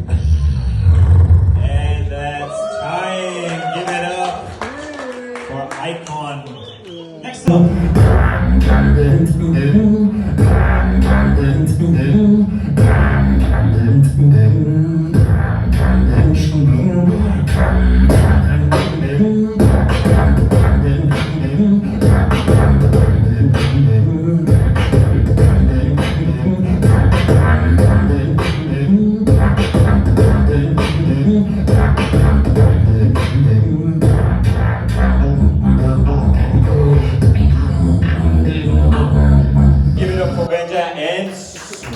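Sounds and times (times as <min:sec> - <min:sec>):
beatboxing into a microphone: 0:00.0 - 0:02.1, 0:06.0 - 0:41.9.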